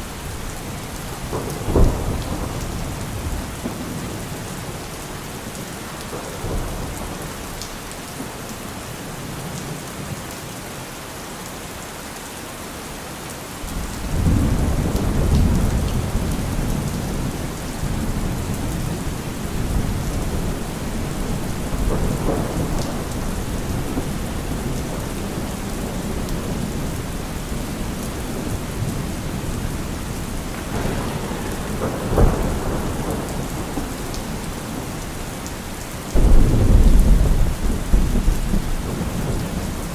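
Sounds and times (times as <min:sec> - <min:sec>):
thunder rumbling: 0:00.0 - 0:04.9, 0:13.6 - 0:39.9
heavy rain falling: 0:00.0 - 0:39.9
sharp thunder crack: 0:30.5 - 0:34.4, 0:36.2 - 0:39.5.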